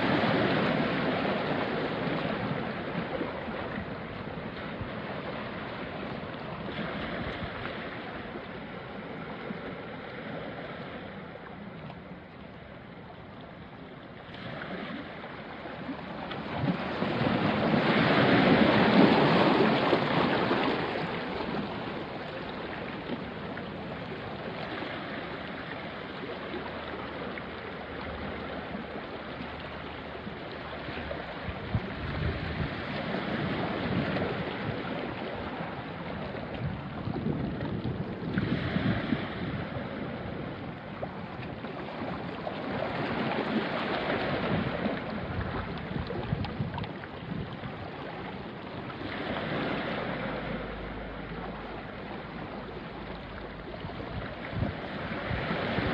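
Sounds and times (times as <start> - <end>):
sea waves washing onto rocks: 0.0 - 11.7, 14.3 - 27.7, 30.3 - 55.9
wind on microphone: 0.0 - 11.7, 30.2 - 55.9.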